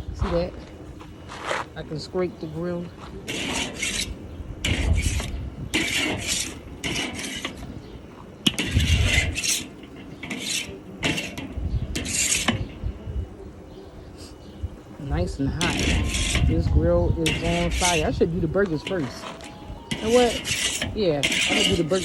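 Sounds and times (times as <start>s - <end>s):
scraper rasping on grill grates: 3.0s - 12.8s, 15.5s - 22.0s.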